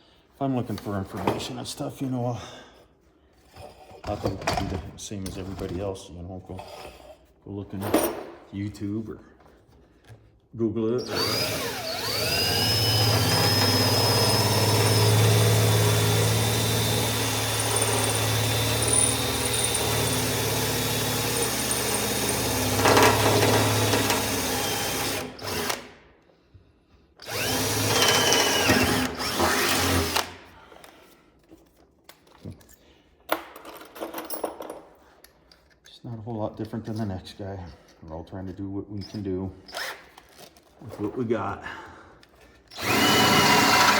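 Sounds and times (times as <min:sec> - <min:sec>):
power drill running: 0:11.0 - 0:26.0, 0:27.2 - 0:30.4, 0:42.7 - 0:43.9.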